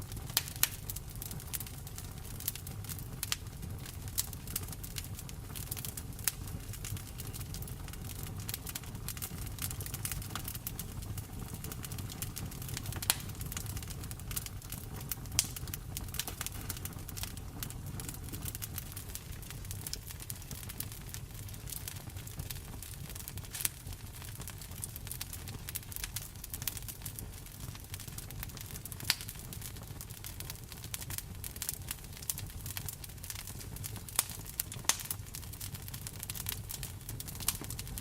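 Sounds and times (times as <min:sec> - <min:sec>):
rain pattering: 0:00.0 - 0:29.3
wood fire crackling and popping: 0:00.0 - 0:38.0.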